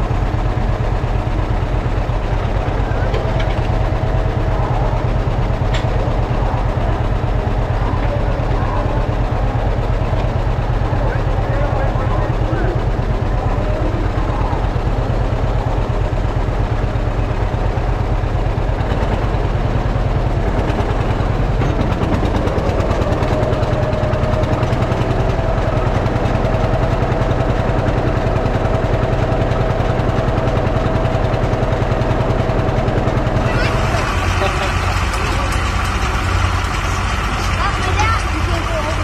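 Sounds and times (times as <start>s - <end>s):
steady whine: 0.0s - 39.0s
tractor engine running under load: 0.0s - 39.0s.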